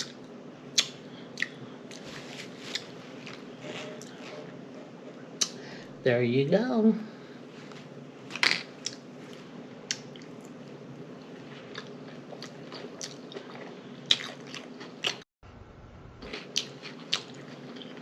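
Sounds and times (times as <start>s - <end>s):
close chewing with wet smacking: 11.7s - 15.2s, 16.2s - 18.0s.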